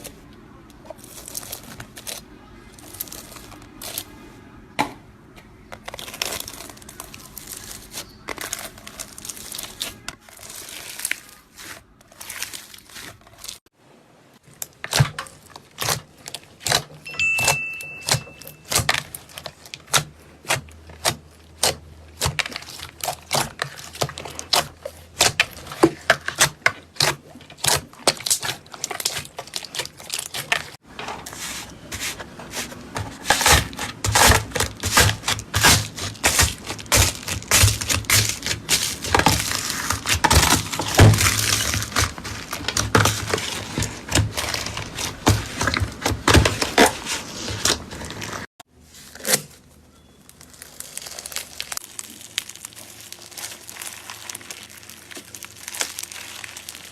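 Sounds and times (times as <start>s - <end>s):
slime popping and crackling: 33.3s - 47.0s, 50.2s - 56.9s.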